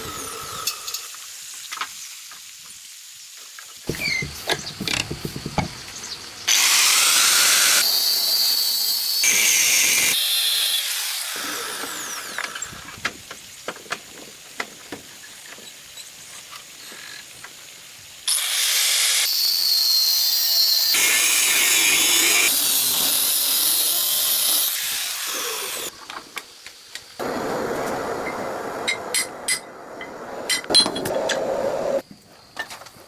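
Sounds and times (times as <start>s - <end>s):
power tool running: 6.5s - 12.9s, 18.3s - 25.9s.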